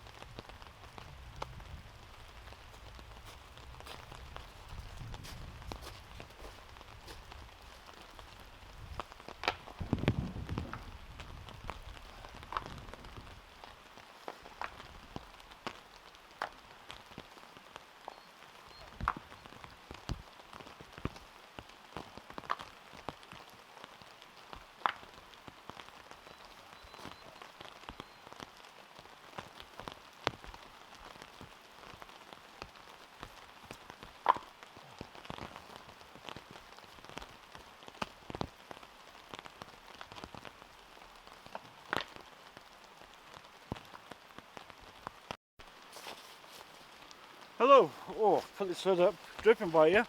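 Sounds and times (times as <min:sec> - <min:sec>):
steady rain falling: 0:00.0 - 0:50.0.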